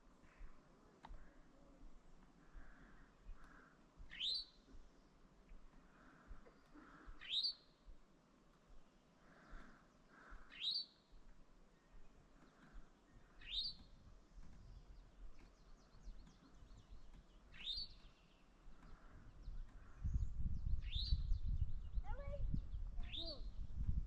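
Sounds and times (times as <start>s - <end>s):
faint bird chirps: 0.2s - 5.2s, 5.8s - 8.0s, 8.8s - 23.9s
songbird rising call: 4.1s - 4.6s, 6.7s - 7.7s, 13.3s - 13.9s.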